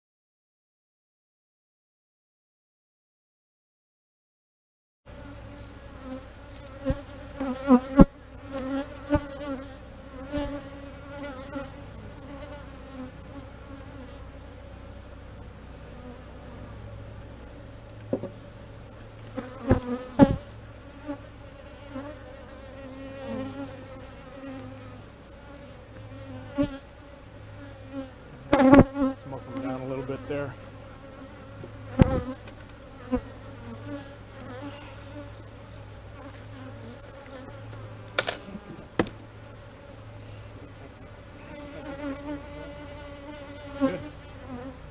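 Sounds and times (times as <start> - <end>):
bees buzzing: 5.1 - 44.9
wooden hive parts knocking: 18.1 - 18.4, 38.1 - 39.2.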